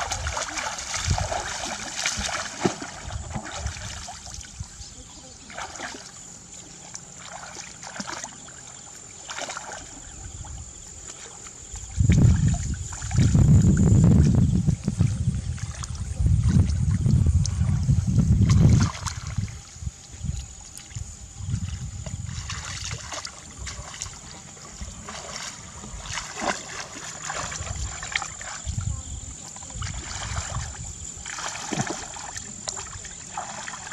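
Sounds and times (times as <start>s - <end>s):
shallow water splashing: 0.0s - 33.9s
low rumble: 11.9s - 20.6s.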